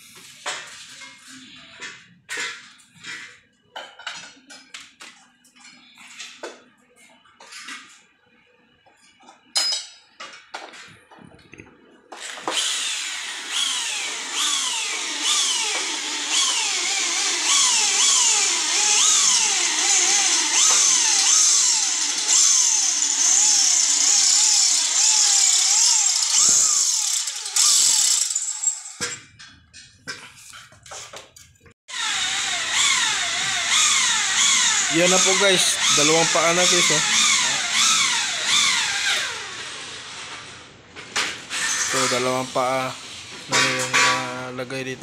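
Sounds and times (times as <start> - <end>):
electric drill driving screws: 12.2 - 29.0, 31.9 - 40.6, 41.5 - 43.3.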